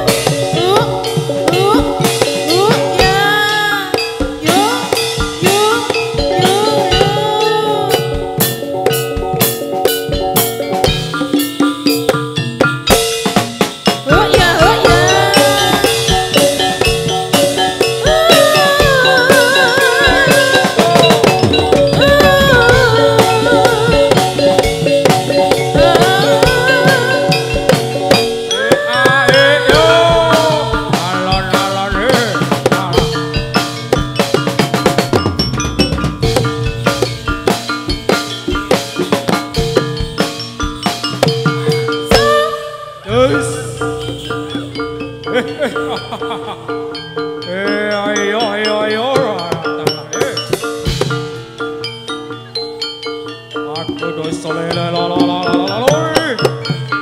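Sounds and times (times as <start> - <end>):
drums: 0.0 - 57.0
gliding bending melody: 14.0 - 56.8.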